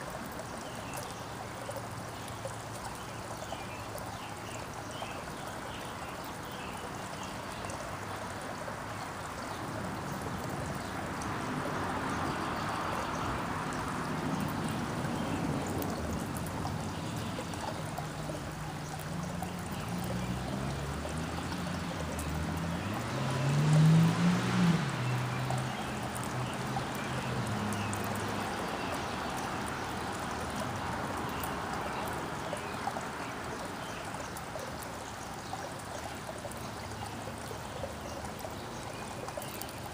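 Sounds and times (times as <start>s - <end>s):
rushing water-like noise: 0.0s - 39.9s
low engine hum: 19.1s - 28.5s.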